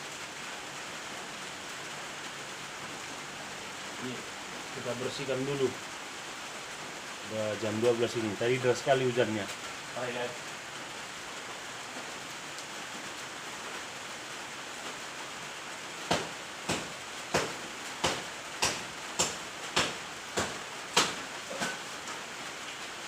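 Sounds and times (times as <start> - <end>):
rain hiss: 0.0 - 23.0
sharp chopping strikes: 16.1 - 21.8.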